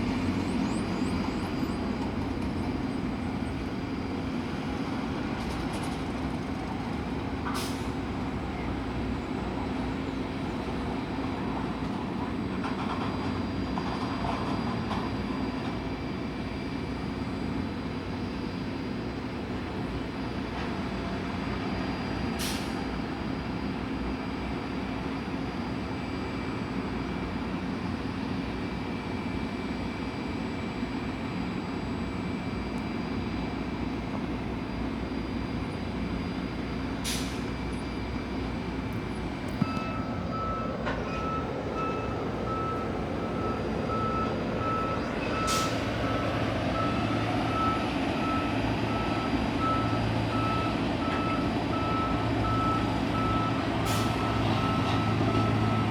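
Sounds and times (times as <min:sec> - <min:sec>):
reversing alarm beeping: 0:39.6 - 0:55.9.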